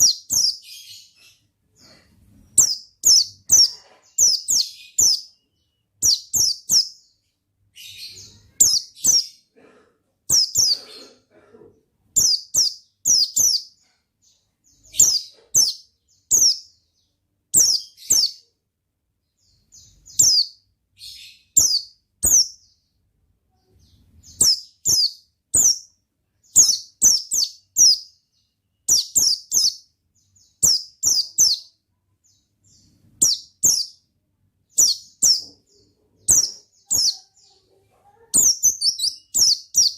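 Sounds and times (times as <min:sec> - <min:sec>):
bird high thin chirps: 0:00.0 - 0:05.4, 0:06.0 - 0:07.1, 0:07.8 - 0:09.4, 0:10.3 - 0:11.2, 0:12.2 - 0:16.8, 0:17.6 - 0:18.4, 0:19.5 - 0:22.7, 0:23.8 - 0:31.8, 0:32.7 - 0:34.0, 0:34.6 - 0:39.9.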